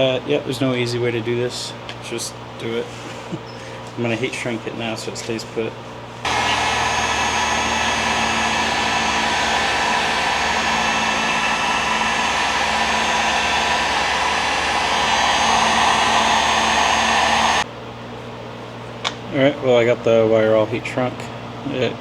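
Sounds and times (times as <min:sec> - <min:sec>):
heat gun blowing: 0:06.3 - 0:17.6.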